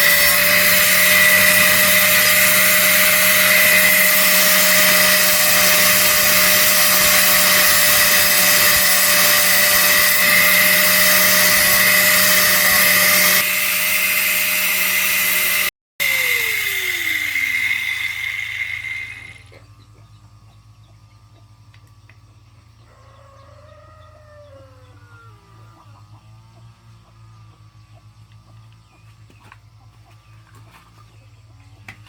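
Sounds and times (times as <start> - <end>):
small power tool motor whining: 0.0 - 19.6.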